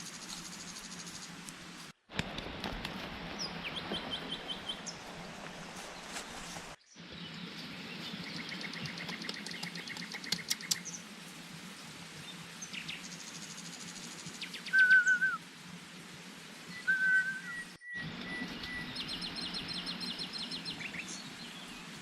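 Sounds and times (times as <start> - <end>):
bird warbling whistle: 14.6 - 15.4, 16.7 - 19.0.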